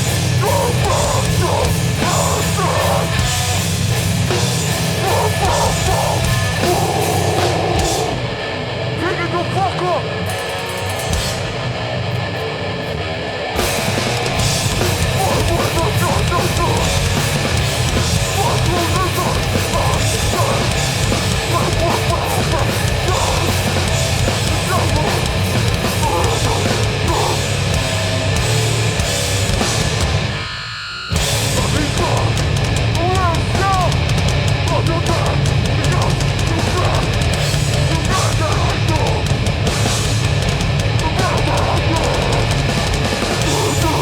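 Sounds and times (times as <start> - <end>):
distorted guitars: 0.0 - 44.0
drums: 0.0 - 44.0.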